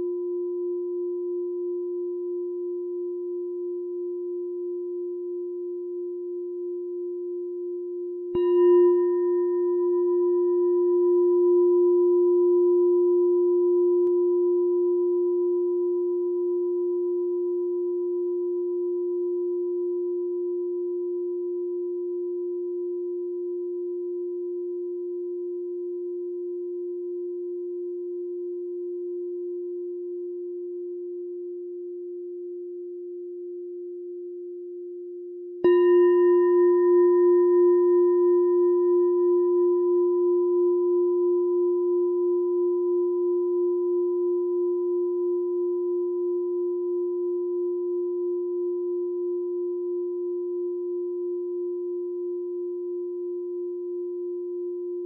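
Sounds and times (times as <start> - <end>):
meditation bell ringing: 8.3 - 22.6, 35.6 - 55.0.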